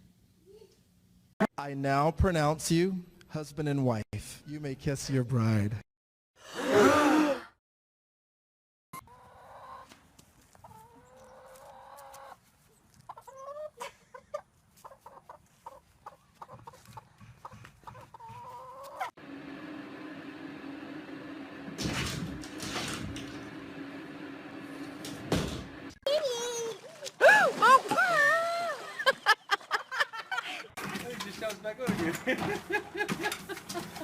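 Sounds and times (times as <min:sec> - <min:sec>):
chickens clucking: 0:09.0 - 0:12.4, 0:13.0 - 0:19.2.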